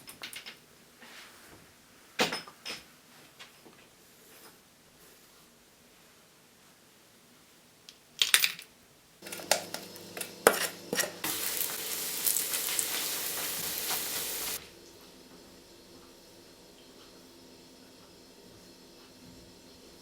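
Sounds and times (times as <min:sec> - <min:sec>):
kitchenware clattering: 0:09.2 - 0:14.6
sizzling hiss: 0:09.4 - 0:14.6.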